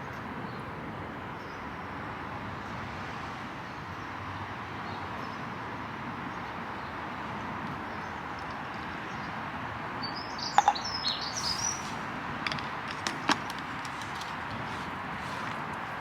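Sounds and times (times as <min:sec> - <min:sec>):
bird chirping: 0:10.0 - 0:12.0
background hiss: 0:11.2 - 0:12.2.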